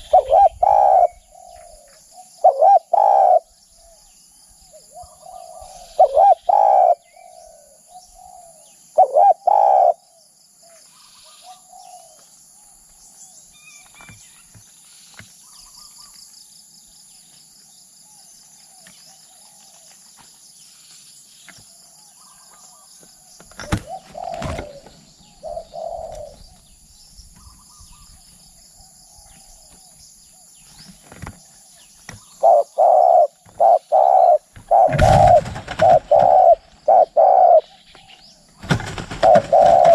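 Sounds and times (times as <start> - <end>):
dove cooing: 0.0 - 4.0, 4.8 - 10.1, 23.4 - 26.8, 32.2 - 39.9
faint small birds chirping: 0.0 - 39.9
high insect drone: 0.0 - 39.9.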